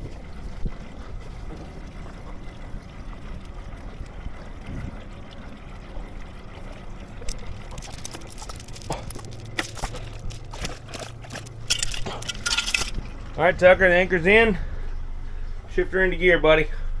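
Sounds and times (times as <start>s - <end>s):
water dripping off anchor line: 0.1s - 13.5s
anchor gear clinking: 7.2s - 13.3s.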